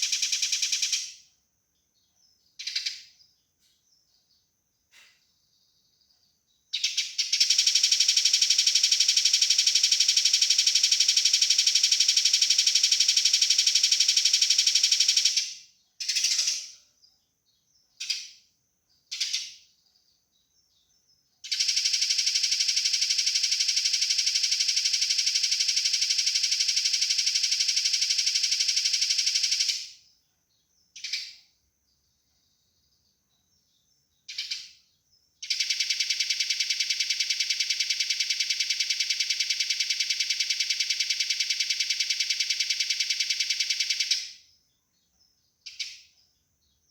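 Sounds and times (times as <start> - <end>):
sparrows chattering harshly: 0.0 - 1.2, 2.0 - 24.8, 30.5 - 37.8.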